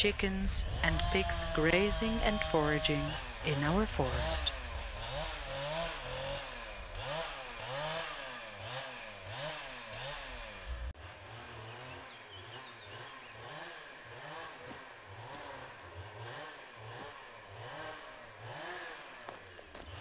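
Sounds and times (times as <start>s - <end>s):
chainsaw engine revving: 0.0s - 20.0s.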